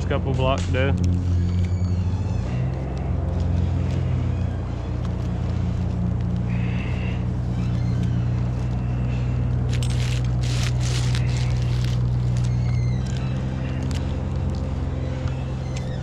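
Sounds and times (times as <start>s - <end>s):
chainsaw engine running: 0.0s - 16.0s
scraping rustling noise: 2.4s - 15.0s.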